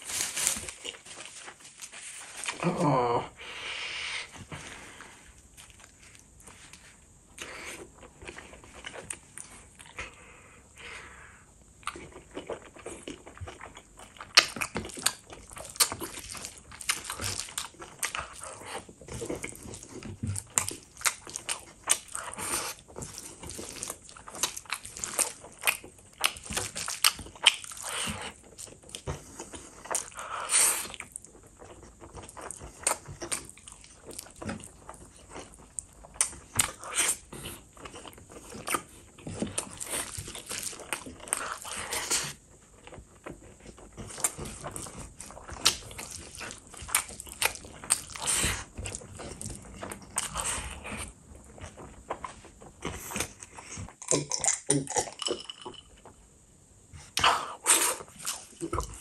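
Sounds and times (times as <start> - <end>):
wet chewing and lip smacks: 11.7 - 55.1.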